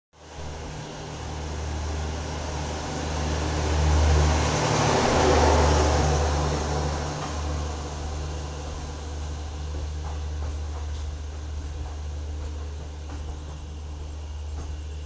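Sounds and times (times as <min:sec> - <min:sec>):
low hum: 0:00.2 - 0:15.0
train wheels rumbling on rails: 0:00.2 - 0:15.0.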